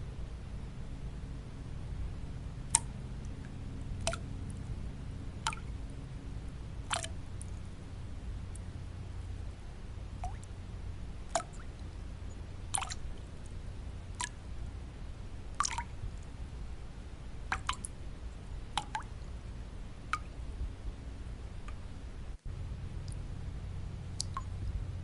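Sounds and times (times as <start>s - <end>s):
deep white noise: 0.0s - 25.0s
water drops plinking: 4.0s - 4.3s, 5.5s - 5.7s, 6.9s - 7.6s, 11.3s - 11.7s, 17.5s - 17.9s, 18.8s - 19.1s, 24.2s - 24.5s.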